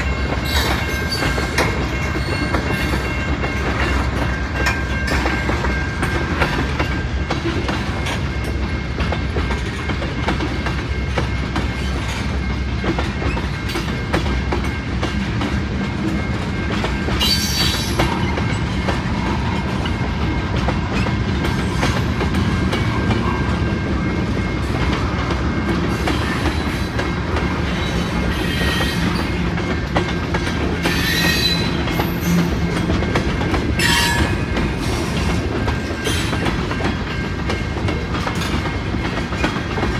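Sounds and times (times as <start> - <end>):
train wheels clacking over rail joints: 0.0 - 39.9
high-pitched wheel squeals: 17.2 - 18.1, 30.8 - 32.6.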